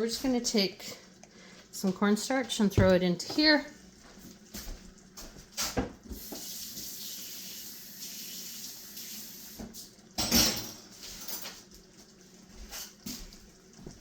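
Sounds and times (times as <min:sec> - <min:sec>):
kitchen tap running: 0:00.0 - 0:14.0
container knocks: 0:02.8 - 0:03.0.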